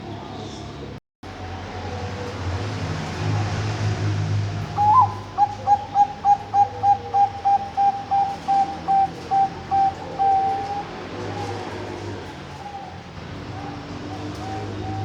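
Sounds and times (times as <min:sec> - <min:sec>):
dove cooing: 0:04.7 - 0:15.0.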